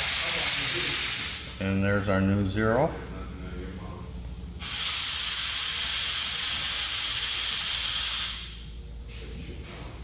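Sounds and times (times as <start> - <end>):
air blowing hiss: 0.0 - 1.6, 4.6 - 8.6.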